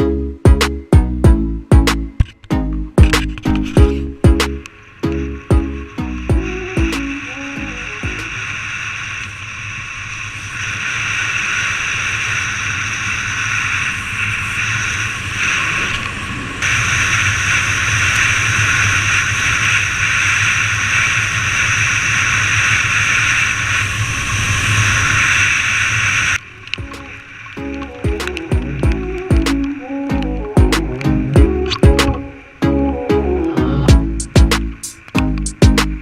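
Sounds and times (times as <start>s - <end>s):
motorbike engine hum: 3.0s - 8.5s, 26.6s - 36.0s
wind rush: 3.0s - 36.0s.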